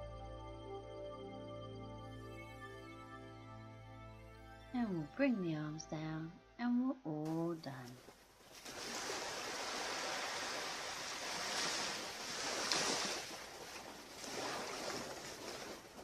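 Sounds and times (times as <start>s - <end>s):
ocean surf on a beach: 8.8s - 16.0s.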